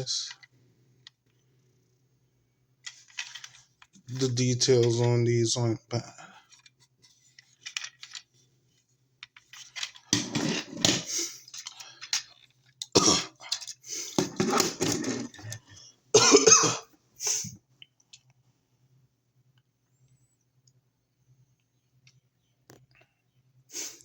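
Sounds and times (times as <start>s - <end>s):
person coughing: 13.0s - 13.4s, 16.2s - 17.4s.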